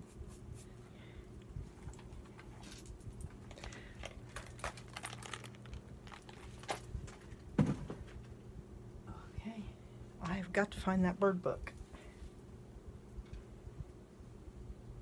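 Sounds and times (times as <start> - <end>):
thump on table: 7.6 - 8.0.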